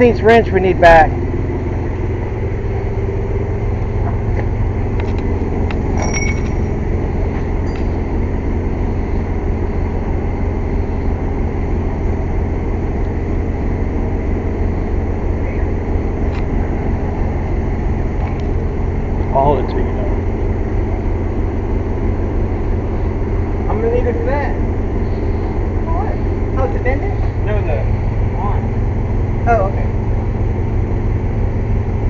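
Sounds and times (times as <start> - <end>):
air compressor running: 0.0 - 32.0
light metallic clinks: 5.9 - 6.7, 7.6 - 8.1.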